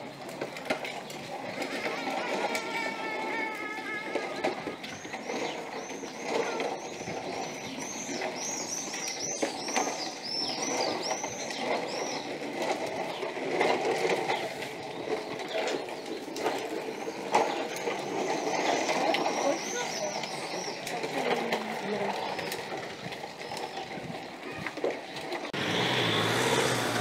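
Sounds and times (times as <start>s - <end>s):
outdoor ambience: 0.0s - 27.0s
small birds chirping: 4.7s - 13.4s, 14.0s - 25.3s.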